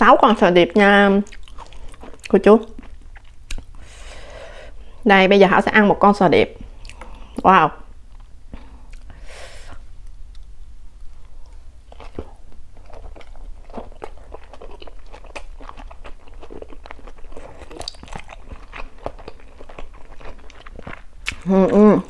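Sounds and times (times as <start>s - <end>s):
close-miked chewing: 1.2s - 3.9s, 11.4s - 22.0s.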